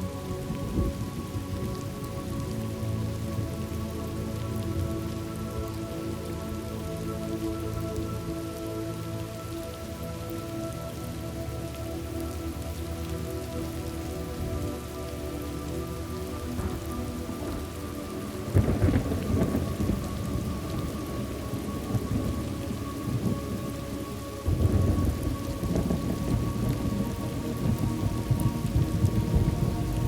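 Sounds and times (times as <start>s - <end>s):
steady rain: 0.0s - 30.0s
thunder rolling: 18.5s - 21.0s, 24.5s - 30.0s.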